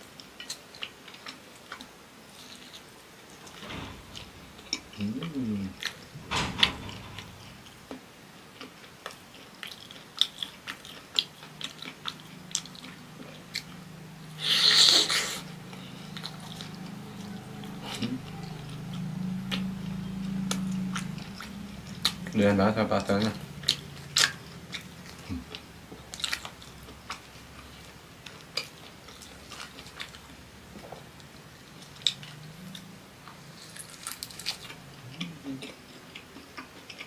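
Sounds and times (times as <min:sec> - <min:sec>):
low steady hum: 0:00.0 - 0:37.0
biting and chewing pastry: 0:07.9 - 0:37.0.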